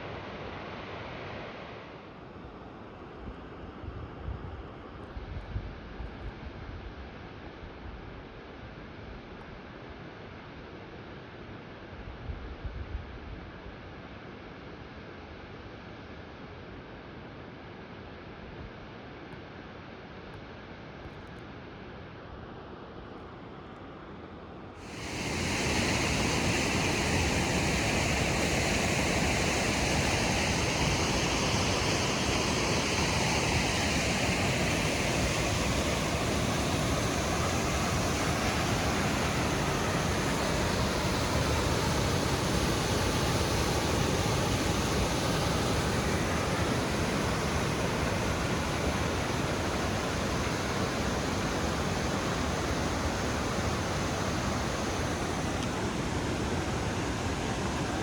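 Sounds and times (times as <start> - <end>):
waterfall rushing: 24.9 - 58.0.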